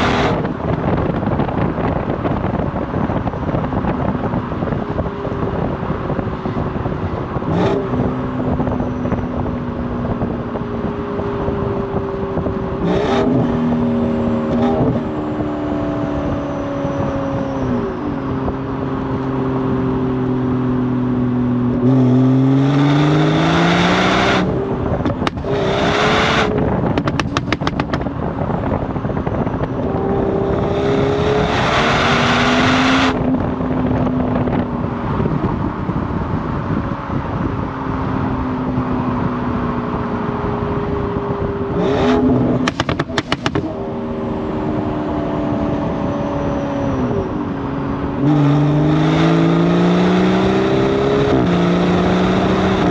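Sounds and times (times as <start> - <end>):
car exhaust revving: 21.6 - 38.0, 38.6 - 52.9
exhaust pops and crackles: 25.0 - 25.5, 26.6 - 28.8, 42.6 - 43.7.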